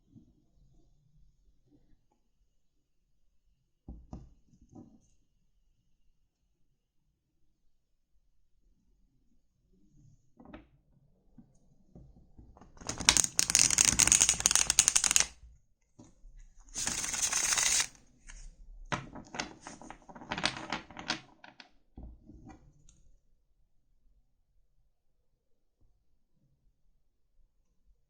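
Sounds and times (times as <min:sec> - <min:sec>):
cards being shuffled: 0:12.8 - 0:15.3, 0:16.8 - 0:17.9
light flicks and taps of cards: 0:12.9 - 0:15.3.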